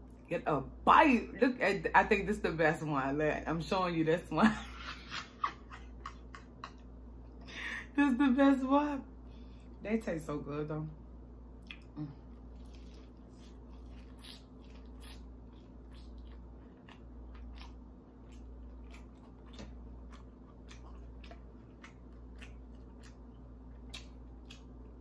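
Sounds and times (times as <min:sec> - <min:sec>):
wet mouth clicks: 0:11.6 - 0:12.0
crisp crunches of chewing: 0:11.6 - 0:25.0.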